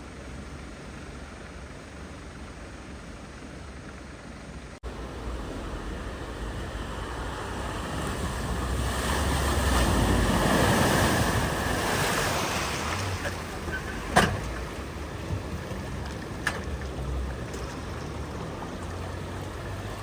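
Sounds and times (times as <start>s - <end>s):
vehicle splashing through floodwater: 4.4s - 20.0s.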